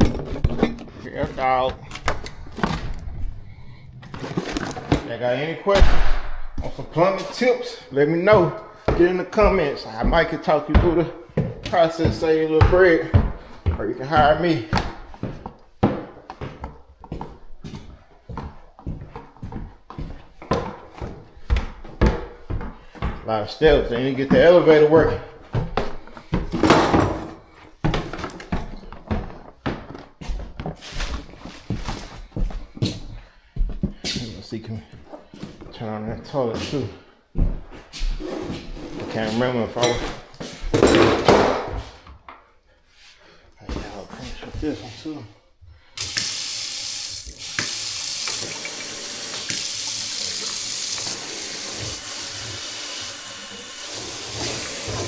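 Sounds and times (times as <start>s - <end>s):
water running through plumbing: 45.9s - 55.0s.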